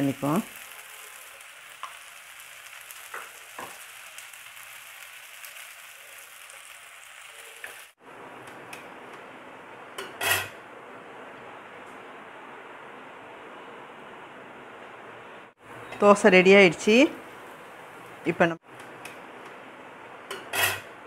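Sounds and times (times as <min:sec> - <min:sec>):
dosa sizzling in oil: 0:00.0 - 0:08.0, 0:16.7 - 0:18.3.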